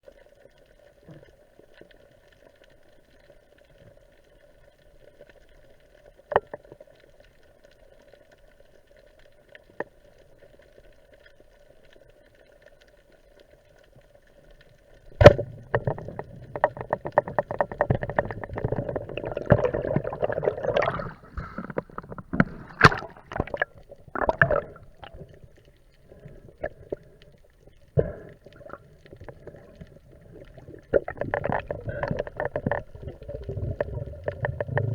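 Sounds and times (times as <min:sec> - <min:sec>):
dense irregular crackling: 0:00.2 - 0:34.9
water splashing and gurgling: 0:15.0 - 0:34.9.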